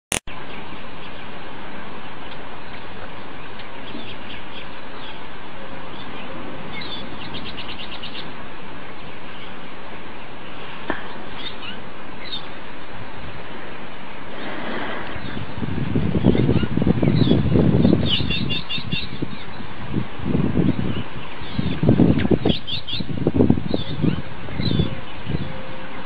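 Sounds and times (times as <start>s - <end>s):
steady rushing noise: 0.2s - 26.0s
birds chirping: 0.3s - 19.8s, 20.5s - 26.0s
bird trill: 5.9s - 8.4s, 11.2s - 12.6s, 16.2s - 19.6s.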